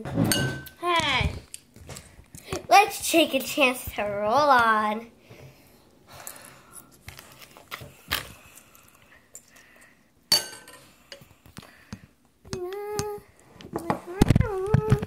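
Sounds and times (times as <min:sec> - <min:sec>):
dishes and utensils clinking: 0:00.0 - 0:00.8, 0:10.3 - 0:11.3.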